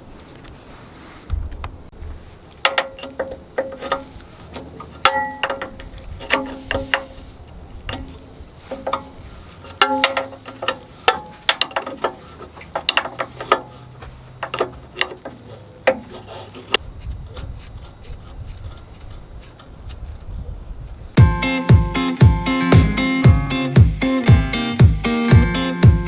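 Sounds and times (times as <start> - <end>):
metal clanks and clinks: 2.6 - 7.3, 7.9 - 16.8.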